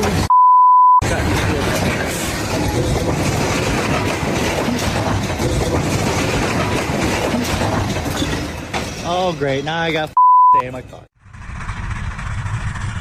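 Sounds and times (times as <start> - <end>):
train cars rattling past: 1.0 - 9.6.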